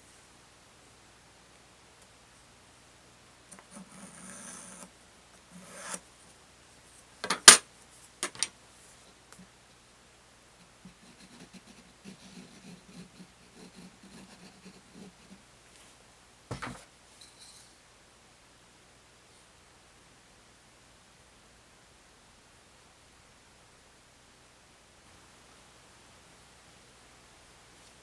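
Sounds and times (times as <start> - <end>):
light rubbing or filing: 3.6 - 4.9, 5.5 - 6.0.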